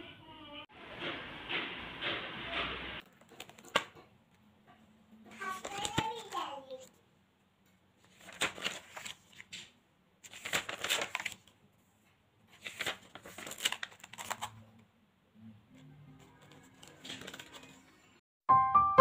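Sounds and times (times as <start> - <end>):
paper rustling and crinkling: 3.0 - 4.0, 5.3 - 6.9, 8.0 - 11.6, 12.5 - 14.6, 16.4 - 18.0.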